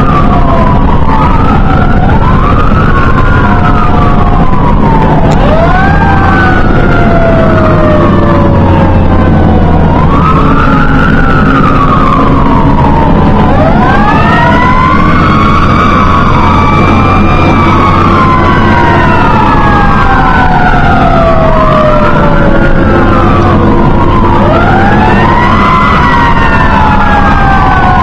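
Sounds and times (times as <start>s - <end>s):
fire engine sirens wailing: 0.0s - 28.0s
fire truck engine droning: 0.0s - 28.0s.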